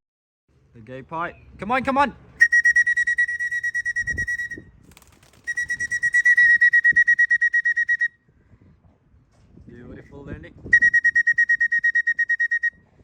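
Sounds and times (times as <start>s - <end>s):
pea whistle trilling blasts: 2.4s - 4.7s, 5.4s - 8.2s, 10.7s - 12.9s.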